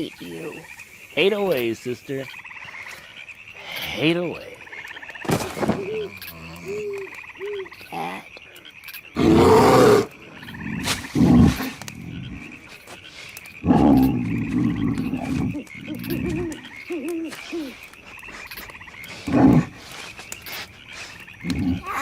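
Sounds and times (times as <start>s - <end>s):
frog chorus trilling: 0.0s - 22.0s.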